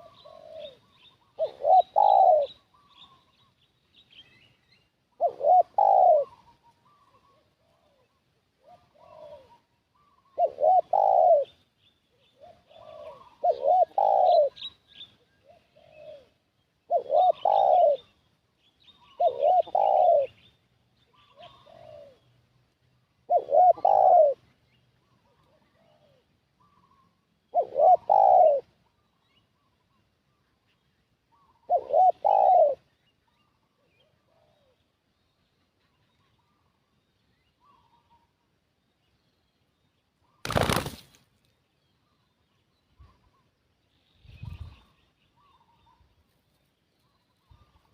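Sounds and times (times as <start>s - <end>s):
dove cooing: 0.0s - 3.4s, 5.1s - 11.6s, 12.3s - 14.7s, 15.3s - 18.2s, 19.0s - 20.4s, 21.1s - 22.3s, 23.2s - 24.4s, 25.1s - 29.1s, 31.3s - 32.9s, 33.7s - 34.9s
small birds chirping: 0.0s - 47.9s.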